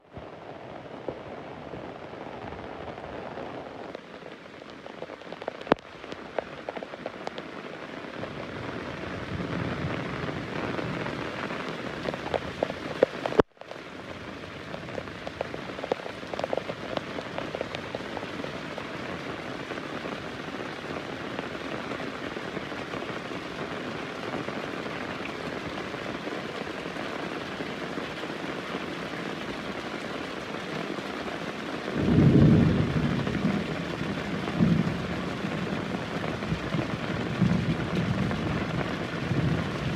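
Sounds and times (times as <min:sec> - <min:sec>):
heavy rain falling: 0:00.0 - 0:39.9
thunder rumbling: 0:32.0 - 0:39.9.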